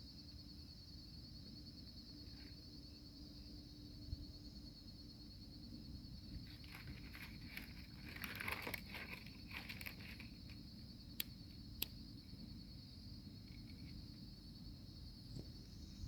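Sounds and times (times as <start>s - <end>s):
crickets chirping: 0.0s - 16.0s
rustling and crackling kindling: 6.4s - 10.6s.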